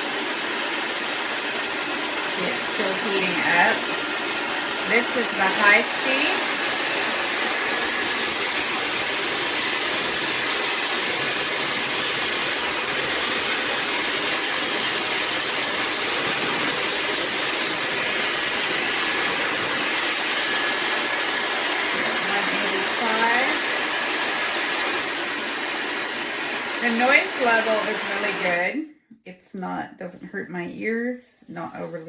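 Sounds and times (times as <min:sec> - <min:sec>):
hair dryer running: 0:00.0 - 0:28.8
high motor whine: 0:01.2 - 0:23.4.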